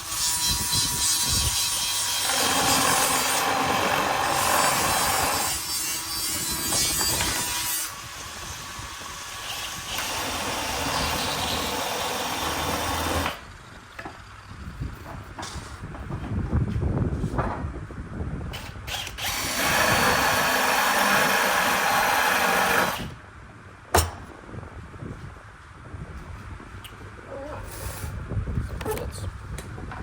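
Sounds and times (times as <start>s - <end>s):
power tool working on wood: 6.6s - 13.4s, 18.9s - 23.1s.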